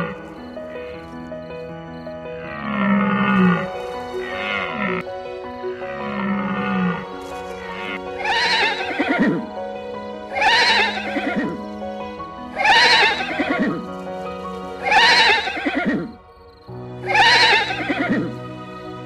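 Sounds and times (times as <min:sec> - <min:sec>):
background music: 0:00.0 - 0:19.0
animal call with falling pitch: 0:07.7 - 0:09.4, 0:10.3 - 0:11.6, 0:12.6 - 0:13.8, 0:14.8 - 0:16.2, 0:17.0 - 0:18.4.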